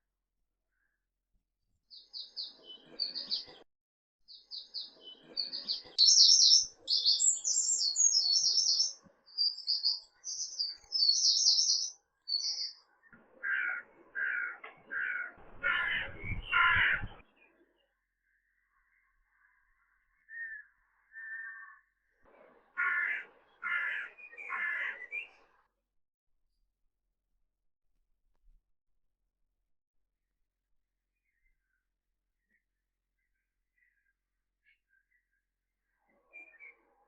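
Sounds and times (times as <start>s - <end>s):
songbird trilling chirps: 4.3s - 15.4s, 16.0s - 22.0s
harsh lower bird calls: 4.3s - 17.4s, 18.4s - 22.1s, 22.7s - 25.6s.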